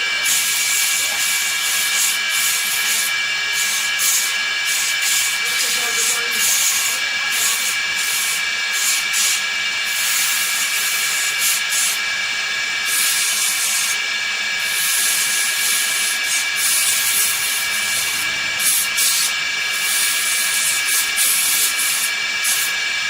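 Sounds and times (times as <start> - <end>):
high machine whine: 0.0 - 23.0
loud hiss: 14.6 - 22.8.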